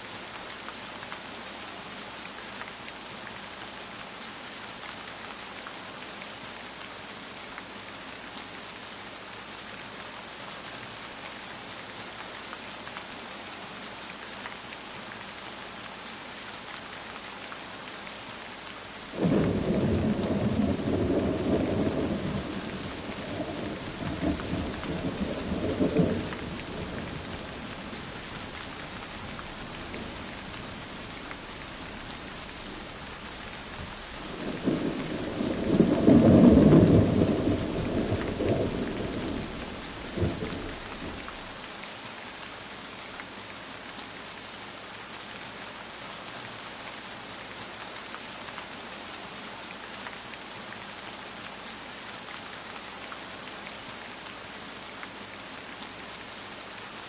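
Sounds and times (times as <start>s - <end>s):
steady rain: 0.0s - 57.0s
thunder rolling: 19.2s - 41.4s.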